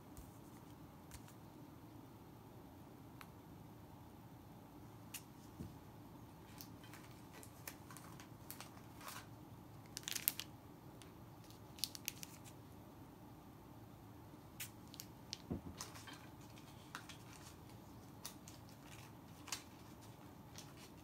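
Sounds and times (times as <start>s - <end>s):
crisp rustling and crinkling: 6.4s - 10.5s, 11.4s - 12.6s, 14.6s - 21.0s.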